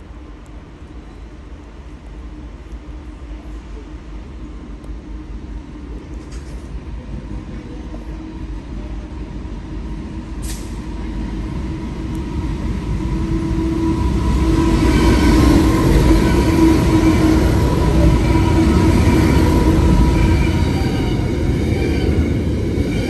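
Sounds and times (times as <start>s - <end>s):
train rumble and motor whine: 0.0s - 23.0s
short hiss: 10.4s - 10.8s.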